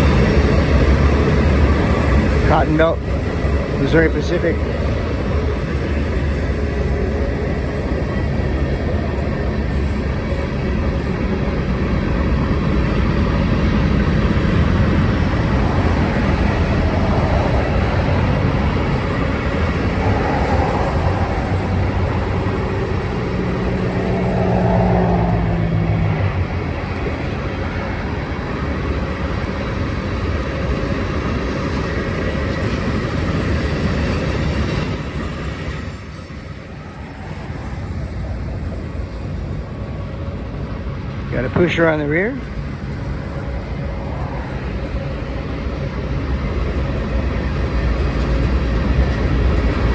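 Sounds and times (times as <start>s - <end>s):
freight train wheels rumbling: 0.0s - 49.9s
droning tone: 15.3s - 26.1s
high-pitched wheel squeal: 31.6s - 41.4s.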